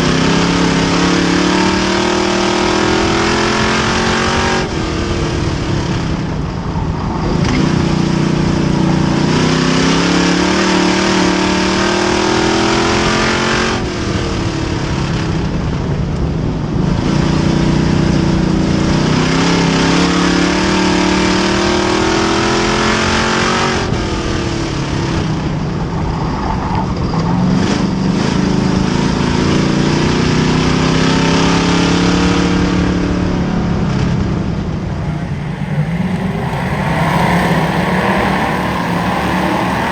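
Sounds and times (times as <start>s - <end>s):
race car engine at full throttle: 0.0s - 39.9s.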